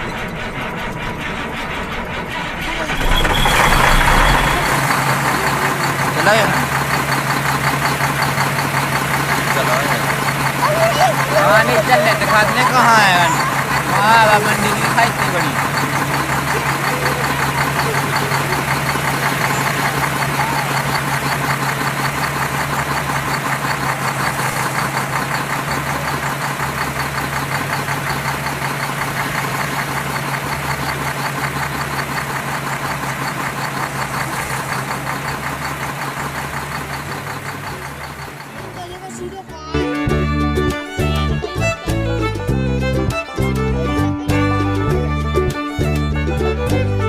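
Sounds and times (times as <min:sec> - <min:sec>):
engine running with knocking beat: 0:00.0 - 0:47.0.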